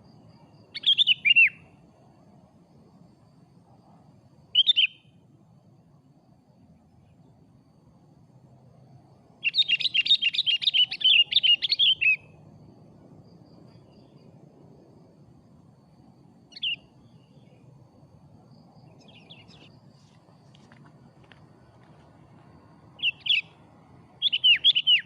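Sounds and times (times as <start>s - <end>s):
bulbul calling: 0.8s - 1.6s, 4.6s - 5.1s, 9.4s - 12.4s, 16.5s - 17.5s, 18.9s - 19.7s, 23.0s - 23.6s, 24.2s - 25.0s.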